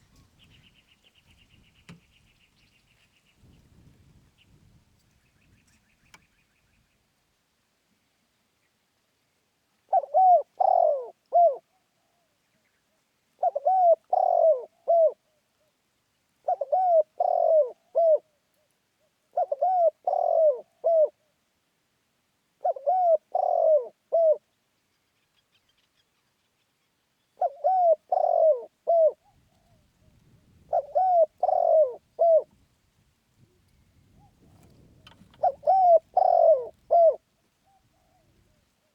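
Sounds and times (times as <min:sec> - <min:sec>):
dove cooing: 0:09.9 - 0:12.2, 0:13.4 - 0:15.7, 0:16.4 - 0:18.4, 0:19.3 - 0:21.2, 0:22.6 - 0:24.4, 0:27.4 - 0:32.6, 0:33.5 - 0:38.9.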